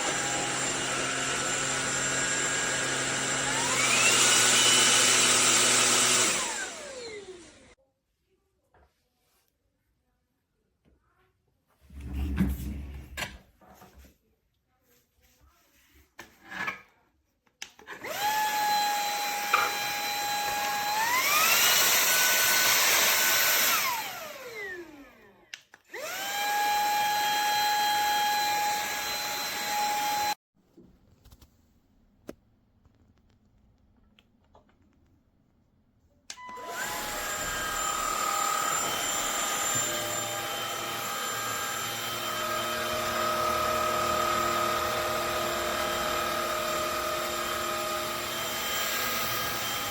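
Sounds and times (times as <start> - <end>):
vacuum motor whining: 0.0 - 7.7, 18.0 - 25.3, 26.0 - 30.4, 36.3 - 49.9.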